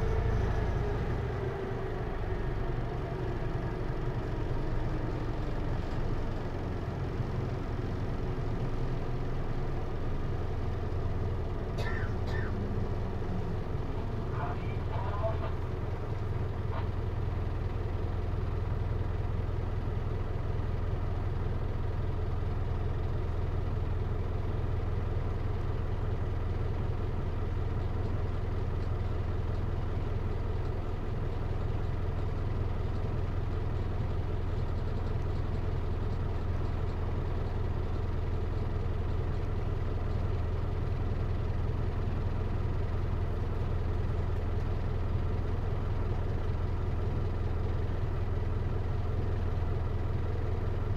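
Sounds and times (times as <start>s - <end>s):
diesel engine idling: 0.0s - 50.9s.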